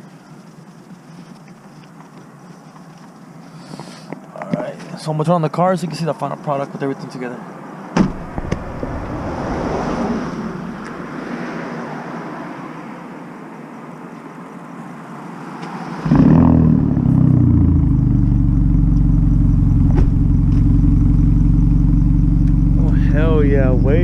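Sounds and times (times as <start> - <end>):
car engine starting and idling: 8.1 - 11.3, 16.1 - 24.0.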